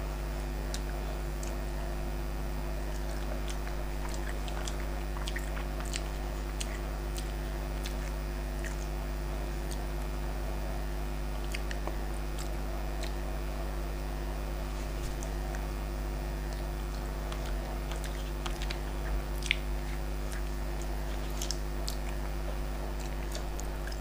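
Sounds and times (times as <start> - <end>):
low hum: 0.0 - 24.0
person chewing food: 0.5 - 13.4, 14.6 - 15.7, 16.3 - 24.0
wet mouth clicks: 2.9 - 9.0, 11.4 - 13.2, 16.5 - 24.0.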